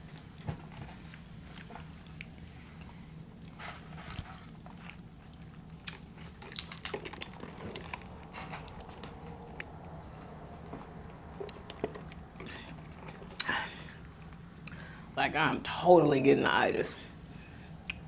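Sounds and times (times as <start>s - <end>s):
steady low hum: 0.0s - 18.0s
tortilla chips crunching: 3.4s - 10.4s.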